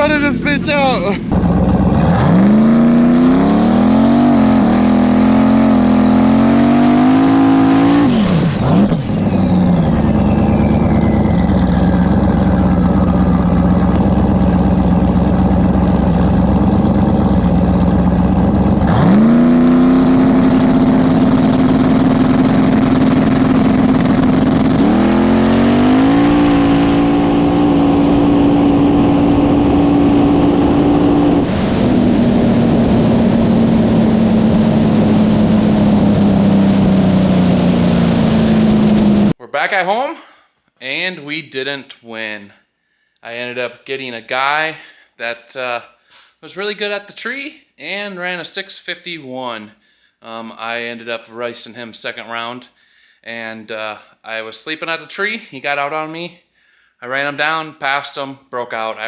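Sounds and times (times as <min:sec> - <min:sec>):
race engine running hard: 0:00.0 - 0:39.4
high falling whistle: 0:09.0 - 0:12.2.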